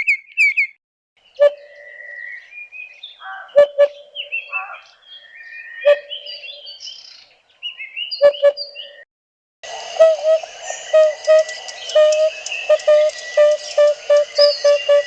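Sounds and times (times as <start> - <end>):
birds chirping and whistling: 0.0 - 0.8, 1.4 - 9.1, 9.7 - 15.0
steady low tone: 9.6 - 15.0.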